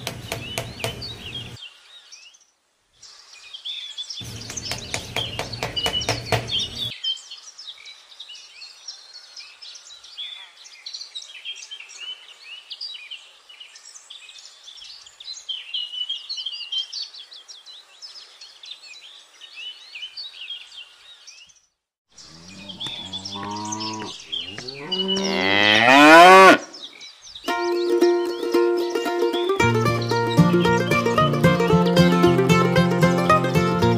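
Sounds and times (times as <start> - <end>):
small birds chirping: 0.0 - 32.3
cow mooing: 22.2 - 26.7.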